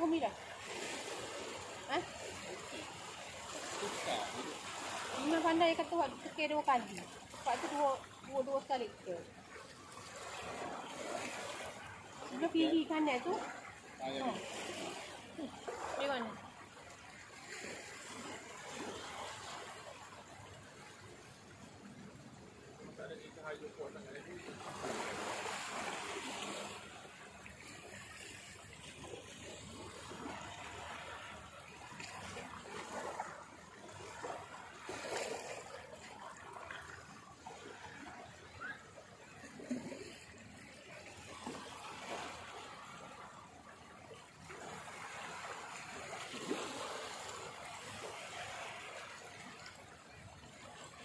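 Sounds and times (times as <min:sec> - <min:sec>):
sea waves washing on shore: 0:00.0 - 0:51.0.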